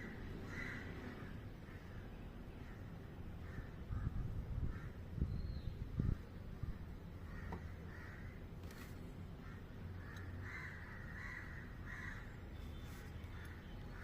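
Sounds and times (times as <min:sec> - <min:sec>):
crows cawing: 0:00.0 - 0:05.0, 0:07.2 - 0:08.4, 0:09.4 - 0:12.4, 0:13.3 - 0:14.0
steady low rumble: 0:00.0 - 0:12.6.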